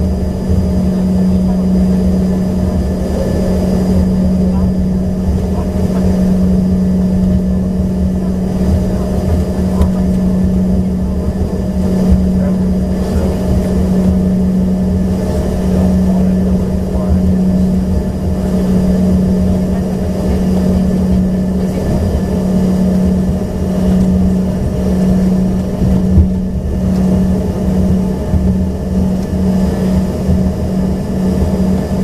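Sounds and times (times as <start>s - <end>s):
airplane cabin drone: 0.0s - 32.0s.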